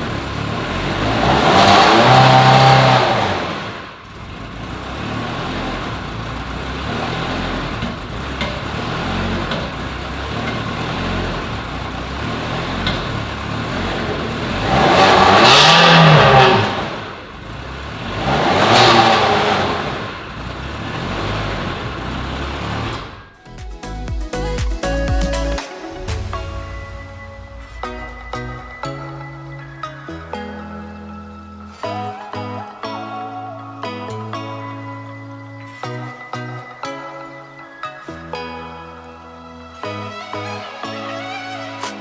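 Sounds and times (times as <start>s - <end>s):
car engine revving: 0.0s - 23.4s
car engine idling: 0.0s - 30.4s.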